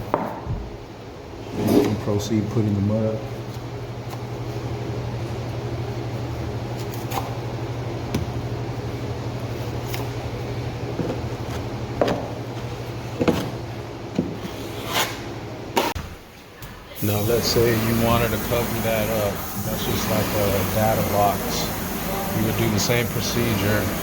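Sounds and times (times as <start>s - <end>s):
steady low hum: 0.0s - 24.0s
drywall knife scraping: 14.4s - 16.0s.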